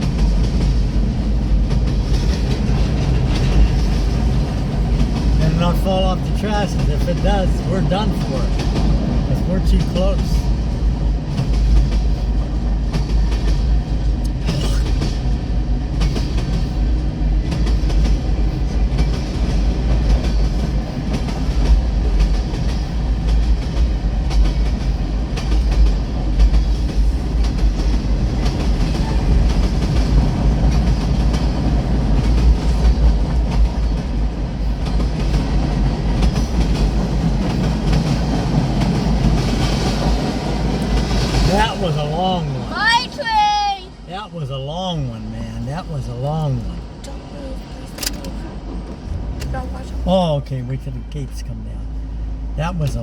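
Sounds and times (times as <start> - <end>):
train wheels clacking on rails: 0.0 - 43.6
freight train rumble: 0.0 - 53.0.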